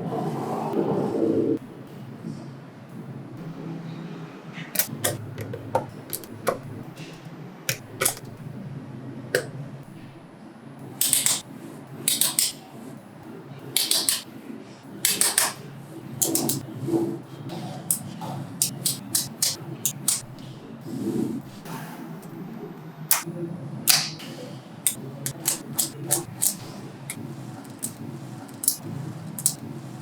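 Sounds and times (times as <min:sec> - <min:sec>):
magnetic balls clicking together: 0:04.8 - 0:08.4, 0:11.0 - 0:12.6, 0:13.8 - 0:14.3, 0:15.0 - 0:16.6, 0:17.9 - 0:20.6, 0:23.1 - 0:23.3, 0:23.9 - 0:30.0.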